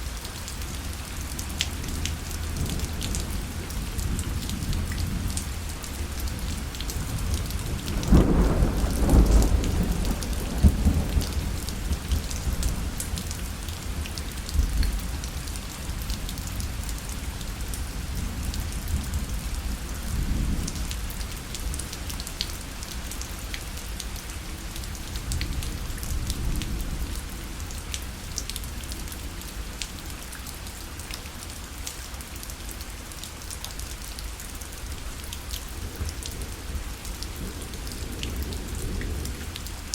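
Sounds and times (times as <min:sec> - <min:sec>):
rain on a parasol: 0:00.0 - 0:39.9
thunder rumbling: 0:02.5 - 0:13.3.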